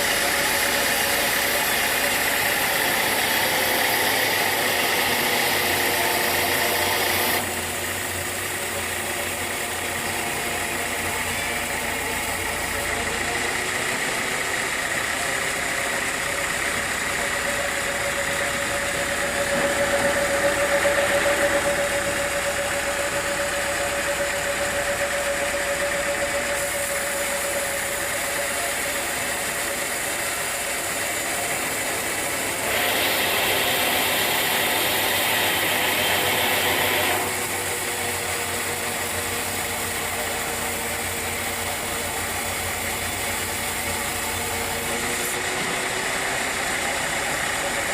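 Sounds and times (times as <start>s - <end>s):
sawmill machinery running: 0.0s - 47.9s.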